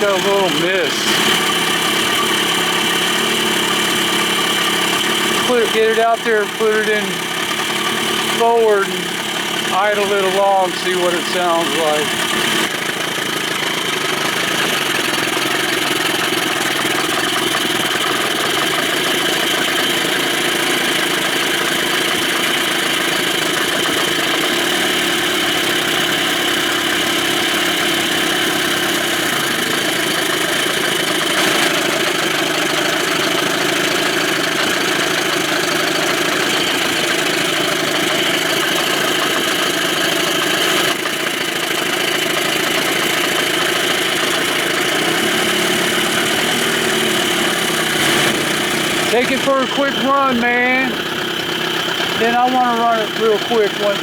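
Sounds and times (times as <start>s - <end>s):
outboard motor idling: 0.0s - 54.0s.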